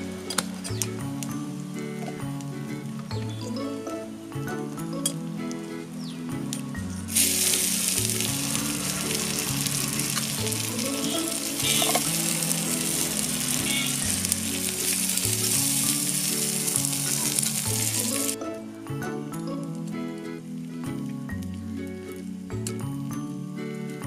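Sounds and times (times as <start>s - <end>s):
vegetables sizzling in oil: 7.1s - 18.4s.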